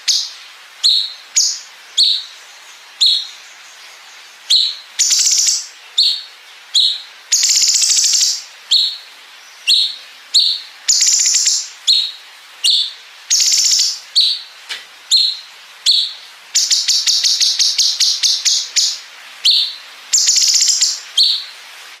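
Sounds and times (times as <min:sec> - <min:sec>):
bird singing chirps and trills: 0:00.0 - 0:14.5, 0:15.1 - 0:21.6.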